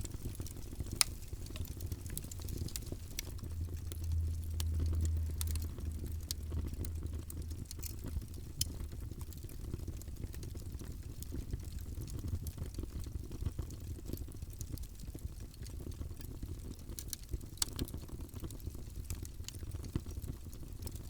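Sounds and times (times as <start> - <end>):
fire pops: 0.0 - 11.2
low fire rumble: 0.0 - 21.0
wood fire crackling: 0.0 - 21.0.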